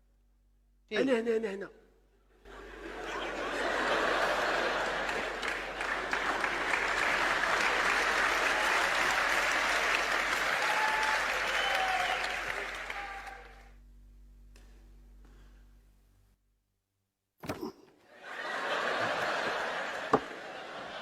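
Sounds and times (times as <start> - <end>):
group applauding: 2.6 - 13.8, 18.2 - 21.0.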